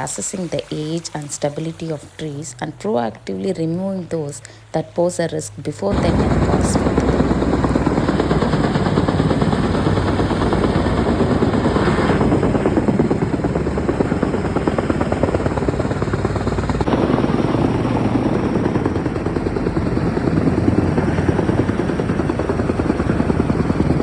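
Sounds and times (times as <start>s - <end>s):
helicopter rotor chopping: 0.0s - 24.0s.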